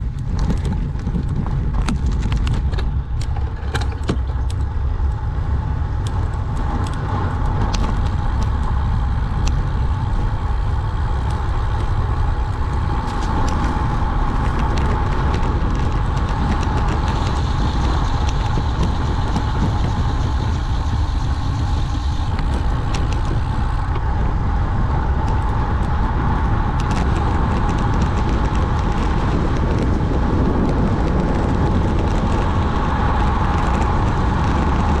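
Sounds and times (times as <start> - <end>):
bike tyre hum: 0.0 - 35.0
wind roar on microphone: 0.0 - 35.0
sharp clicks and knocks: 0.1 - 5.2.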